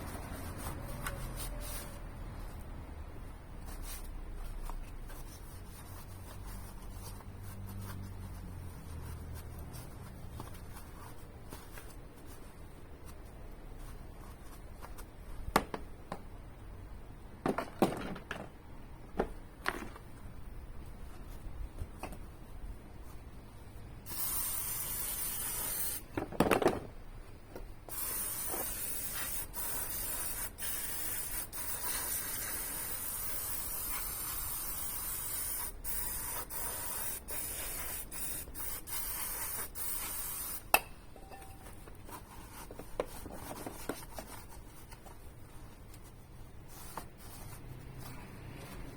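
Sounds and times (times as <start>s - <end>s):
aerosol spray can hissing: 24.1s - 26.0s, 27.9s - 40.6s.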